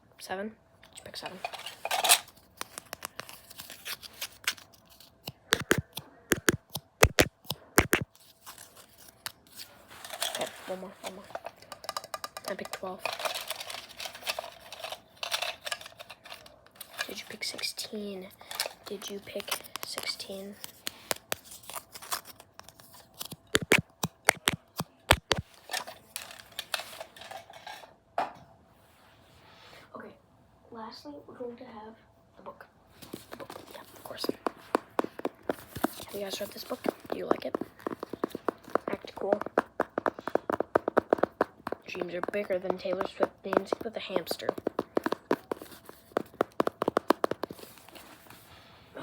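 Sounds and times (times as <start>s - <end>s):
scratching and rustling: 1.0s - 27.9s, 32.9s - 49.0s
sharp irregular clicks and taps: 5.2s - 8.1s, 11.5s - 13.4s, 23.3s - 25.4s, 33.4s - 47.6s.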